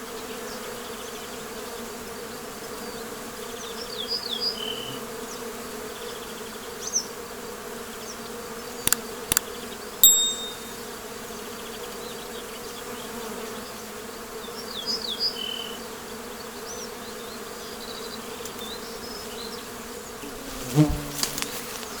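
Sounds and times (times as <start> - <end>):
sharp clicks: 10.0 - 10.7.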